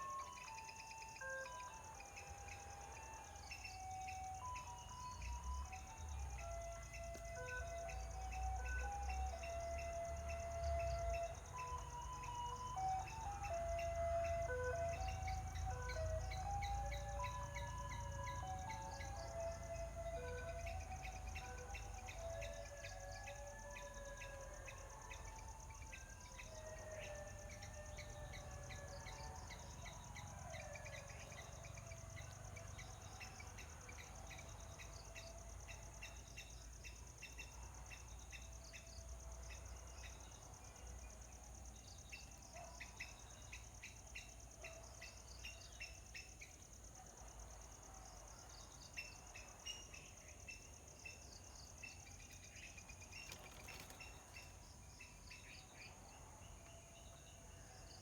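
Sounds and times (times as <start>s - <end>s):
small birds chirping: 48.6s - 57.3s.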